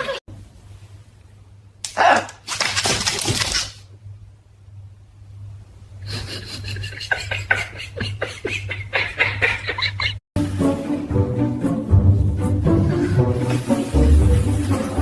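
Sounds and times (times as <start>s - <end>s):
steady low hum: 3.9s - 15.0s
person laughing hard: 6.1s - 10.2s.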